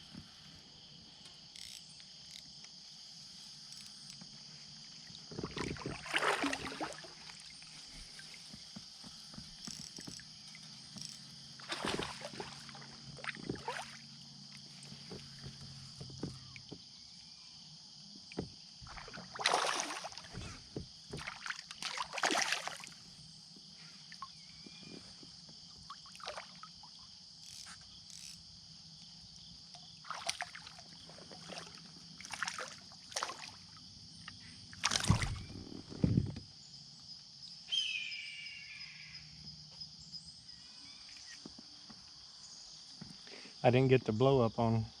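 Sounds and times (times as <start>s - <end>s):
insects droning: 0.0s - 45.0s
kayak paddle splashing water: 5.2s - 8.2s, 11.6s - 14.1s, 18.8s - 23.0s, 30.0s - 33.7s, 34.8s - 35.6s.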